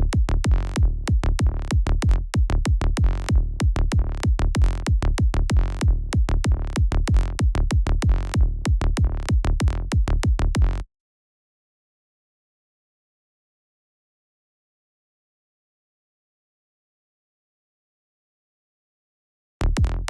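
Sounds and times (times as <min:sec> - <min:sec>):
pulsing synth bass: 0:00.0 - 0:10.8, 0:19.6 - 0:20.0
synthesized kick drum: 0:00.0 - 0:10.8, 0:19.6 - 0:20.0.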